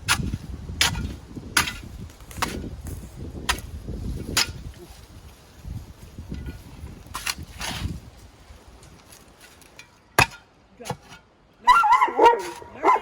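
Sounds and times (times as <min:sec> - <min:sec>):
shovel striking clay: 0:00.1 - 0:02.7, 0:10.2 - 0:11.2.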